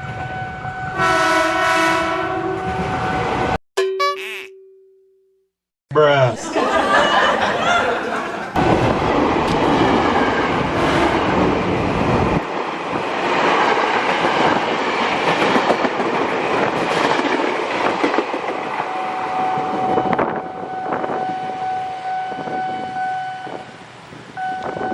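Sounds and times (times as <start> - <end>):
steady high tone: 3.8 - 5.1.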